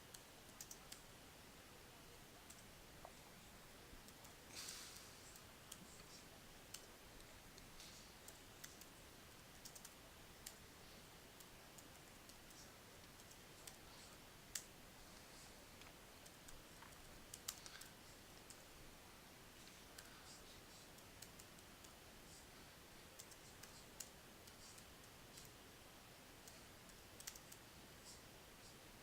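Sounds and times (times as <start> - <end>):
typing on computer keyboard: 9.5 - 10.6, 27.2 - 27.6.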